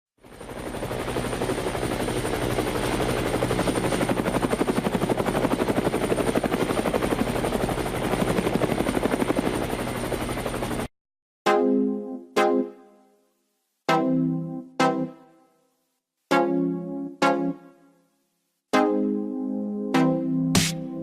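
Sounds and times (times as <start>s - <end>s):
helicopter rotor chopping: 0.2s - 10.9s.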